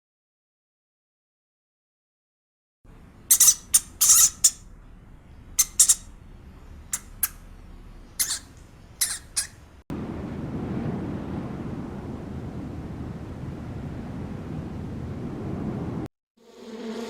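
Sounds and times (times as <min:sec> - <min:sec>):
high-pitched animal calls: 0:03.2 - 0:04.7, 0:05.5 - 0:06.2, 0:06.9 - 0:07.5, 0:08.1 - 0:09.7.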